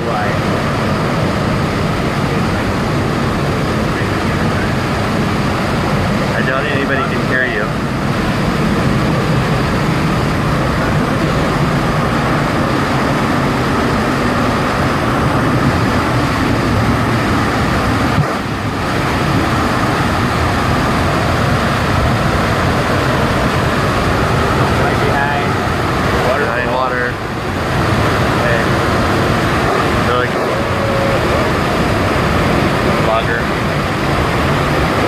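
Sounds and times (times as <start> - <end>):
waterfall roaring: 0.0 - 35.0.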